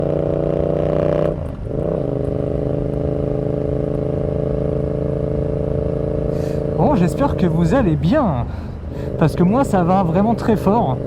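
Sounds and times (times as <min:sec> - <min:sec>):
motorcycle engine revving: 0:00.0 - 0:07.5.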